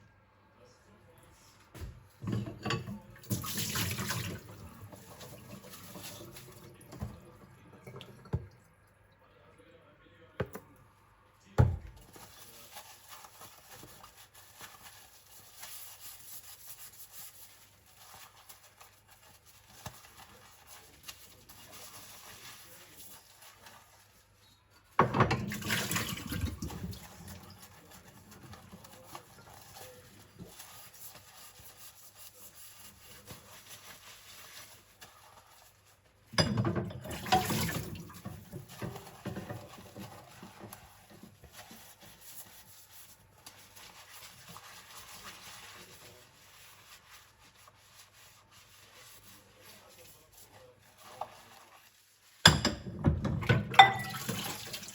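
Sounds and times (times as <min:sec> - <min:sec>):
tap water running over bowls: 0:02.2 - 0:09.2, 0:25.0 - 0:33.1, 0:36.4 - 0:42.6, 0:52.8 - 0:54.9.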